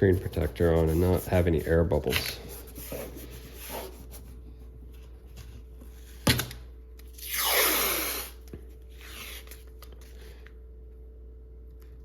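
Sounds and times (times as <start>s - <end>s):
adhesive tape ripping: 7.1s - 8.4s.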